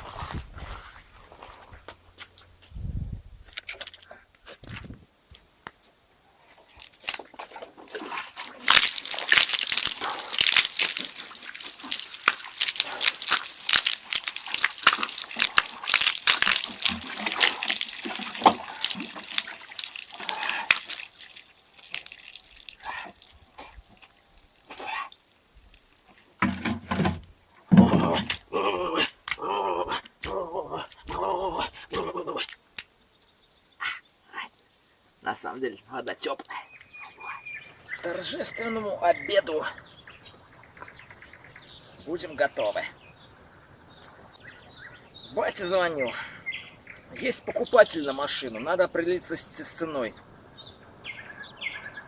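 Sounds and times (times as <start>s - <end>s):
water pouring and splattering: 6.4s - 32.9s, 36.1s - 42.9s
small water drips: 6.4s - 35.0s.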